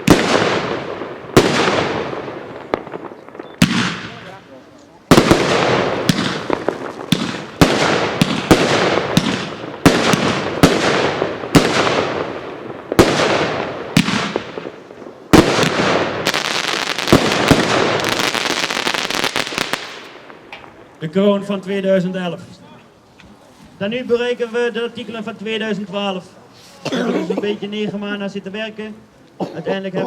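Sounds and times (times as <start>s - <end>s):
crackling of strobe fireworks: 0.0s - 21.1s
fireworks bangs with hissing tails: 0.0s - 21.4s.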